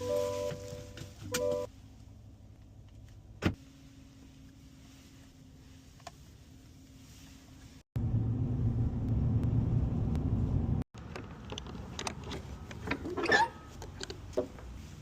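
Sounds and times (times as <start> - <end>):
loud low rumble: 8.0 - 10.8.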